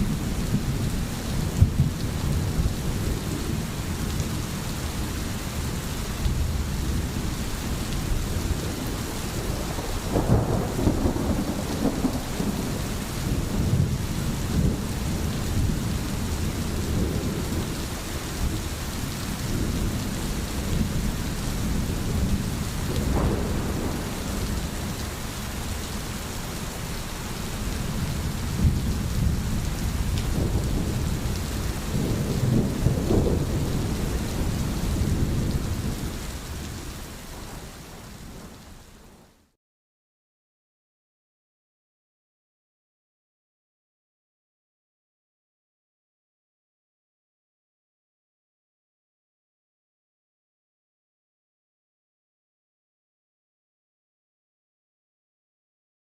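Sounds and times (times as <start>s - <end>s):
rolling thunder: 0.0s - 4.5s, 6.3s - 25.8s, 27.9s - 38.6s
steady rain falling: 0.0s - 39.6s.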